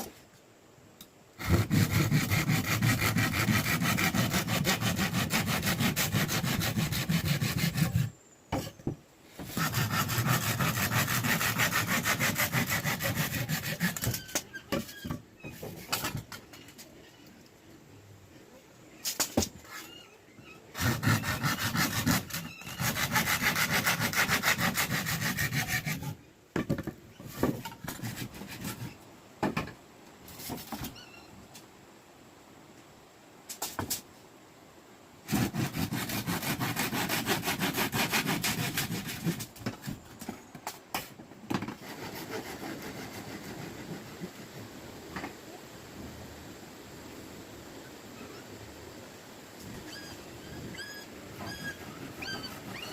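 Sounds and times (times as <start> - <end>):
handsaw sawing wood: 1.4 - 8.1, 9.4 - 14.2, 20.8 - 26.2, 27.9 - 28.9, 35.3 - 39.5, 41.7 - 44.4, 51.4 - 52.9.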